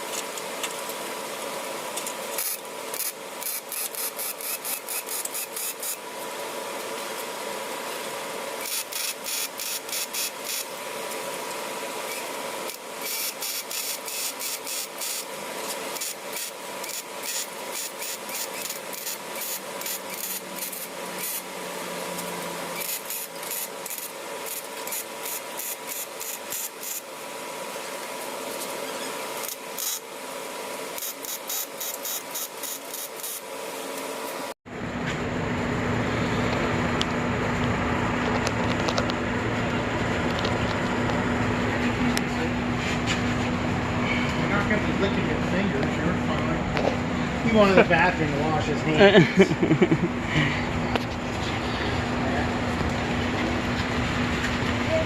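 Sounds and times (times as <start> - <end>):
arc welding crackle: 0.0 - 34.6
faint welder hum: 0.0 - 55.0.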